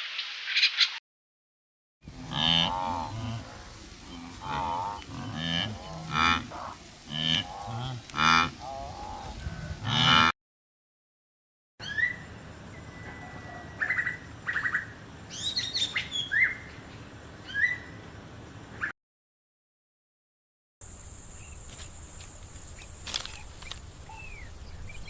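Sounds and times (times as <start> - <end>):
wavering animal calls: 2.1 - 10.3
birds chirping with trills: 11.8 - 18.9, 20.9 - 25.0.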